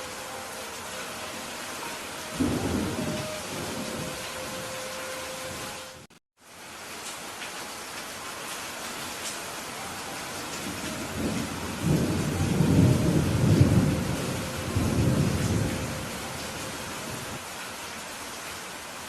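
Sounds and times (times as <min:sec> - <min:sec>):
steady rain: 0:00.0 - 0:19.0
rolling thunder rumble: 0:02.4 - 0:04.7, 0:10.6 - 0:17.4.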